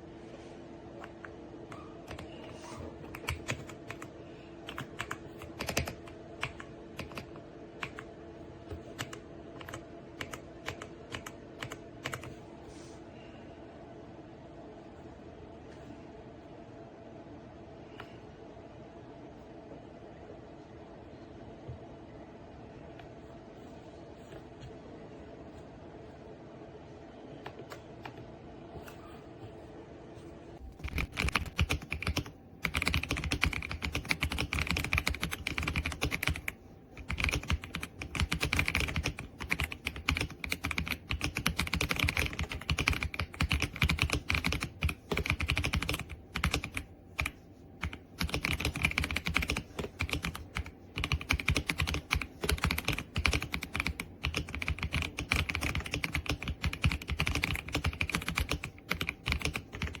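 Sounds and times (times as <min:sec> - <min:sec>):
mechanical keyboard typing: 0:02.0 - 0:02.3, 0:03.0 - 0:08.1, 0:08.7 - 0:12.4, 0:30.7 - 1:00.0.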